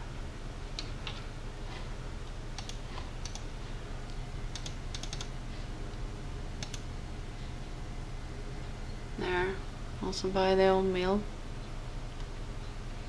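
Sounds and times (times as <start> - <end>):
steady low hum: 0.0 - 13.0
computer clicks and taps: 2.5 - 3.5, 4.5 - 5.3, 6.6 - 6.9.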